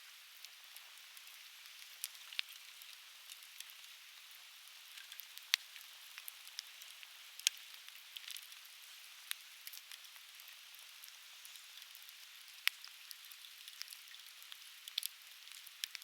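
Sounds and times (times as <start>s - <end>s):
firewood crackling and popping: 13.6s - 16.0s.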